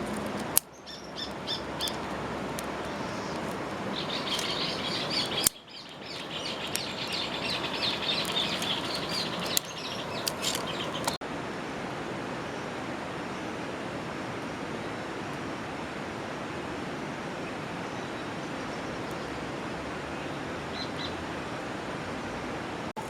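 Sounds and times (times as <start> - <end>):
birds chirping: 0.0 - 11.2
steady background hiss: 0.0 - 22.0.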